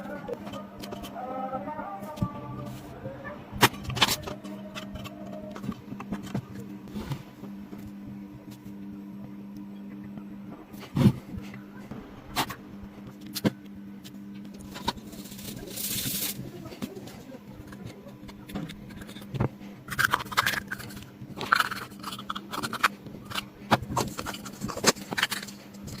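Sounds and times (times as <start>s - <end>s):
steady low hum: 0.0s - 26.0s
scratching and scraping: 14.6s - 26.0s.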